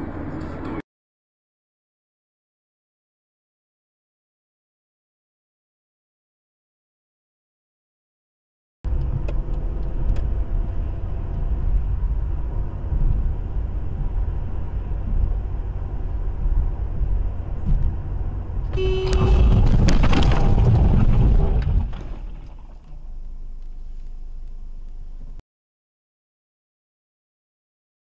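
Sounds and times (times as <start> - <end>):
road and engine rumble: 0.0 - 0.8, 8.8 - 25.4
car horn: 18.7 - 19.8
loud rough noise: 18.7 - 24.1.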